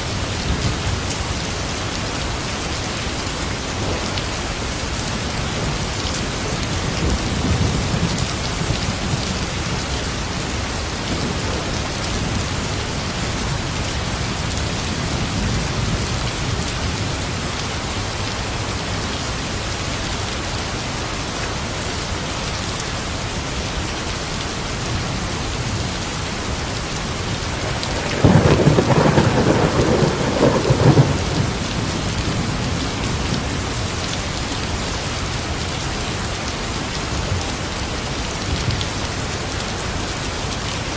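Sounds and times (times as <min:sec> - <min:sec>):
steady rain: 0:00.0 - 0:40.9
thunderclap rumbling: 0:27.3 - 0:33.6.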